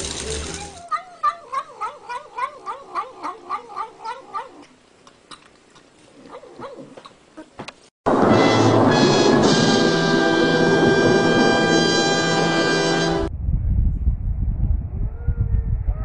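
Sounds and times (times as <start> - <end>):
cat yowling: 0.5 - 4.7.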